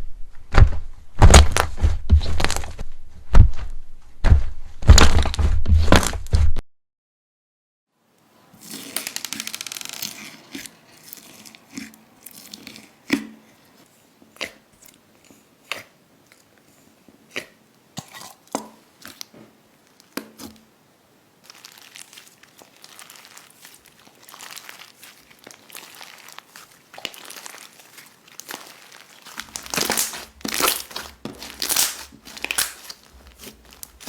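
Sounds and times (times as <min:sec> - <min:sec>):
slime crackling and popping: 0:08.6 - 0:13.3, 0:21.4 - 0:34.0.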